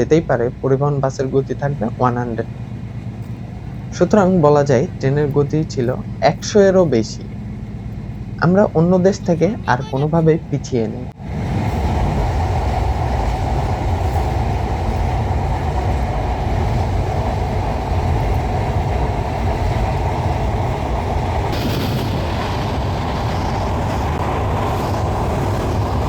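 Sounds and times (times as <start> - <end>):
train wheels rumbling on rails: 0.0 - 26.0
hiss: 11.2 - 26.0.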